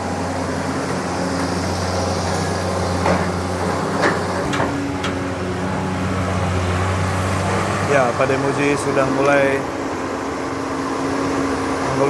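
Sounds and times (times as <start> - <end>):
excavator diesel engine running: 0.0 - 12.0
excavator bucket clanking: 0.4 - 9.6.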